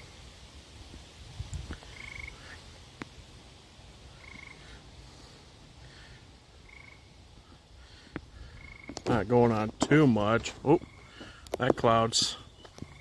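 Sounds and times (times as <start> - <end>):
low wind rumble: 0.0 - 13.0
fainter frog calls: 1.8 - 2.6, 4.1 - 4.8, 6.5 - 7.2, 7.9 - 9.1, 10.6 - 11.6
frogs calling in trills: 1.8 - 2.6, 4.1 - 4.8, 6.5 - 9.2, 10.6 - 13.0.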